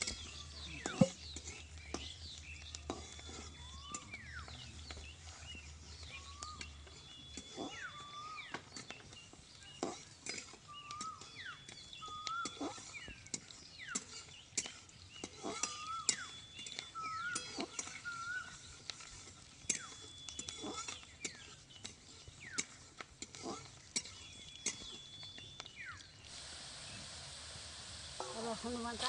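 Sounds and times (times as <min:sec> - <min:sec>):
frying pan sizzling: 0:00.0 - 0:05.4, 0:25.5 - 0:29.0
birds whistling and clicking: 0:00.0 - 0:29.0.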